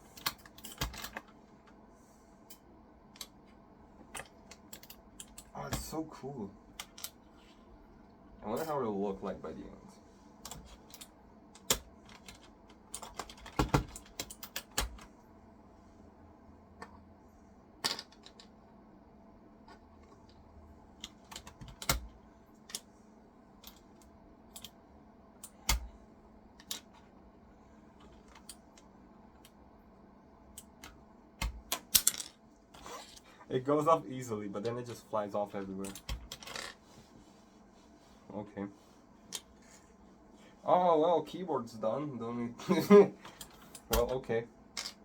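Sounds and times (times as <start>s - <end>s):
keycaps clicking and snapping off: 0.2s - 1.4s, 4.1s - 5.9s, 10.4s - 15.1s, 21.0s - 22.9s, 23.6s - 24.8s, 25.4s - 26.0s, 35.8s - 36.6s, 43.2s - 44.3s.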